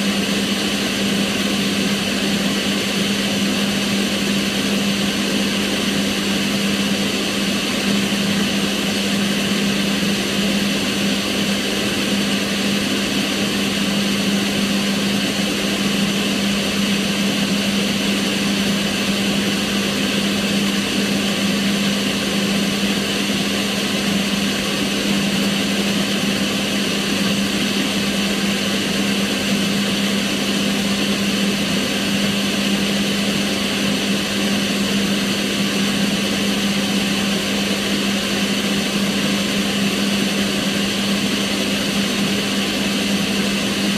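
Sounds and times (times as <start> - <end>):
extractor fan rushing air: 0.0 - 43.9.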